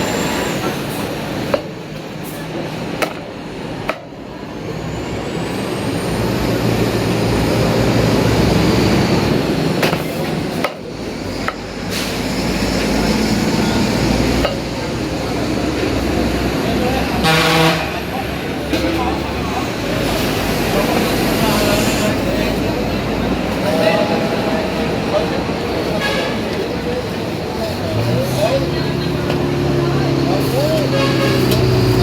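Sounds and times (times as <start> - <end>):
busy road traffic: 0.0 - 32.0.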